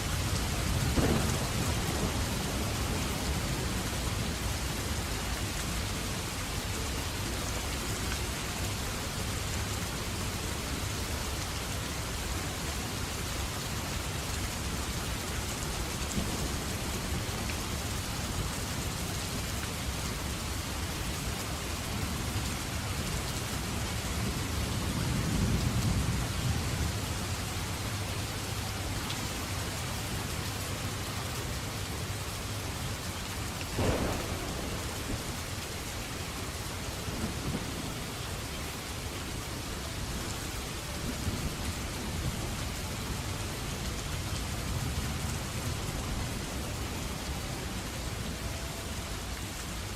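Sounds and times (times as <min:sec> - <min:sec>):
steady rain: 0:00.0 - 0:49.9
low thunder rumble: 0:00.2 - 0:04.9, 0:33.8 - 0:38.4
sharp thunder crack: 0:00.9 - 0:02.8, 0:33.8 - 0:35.8.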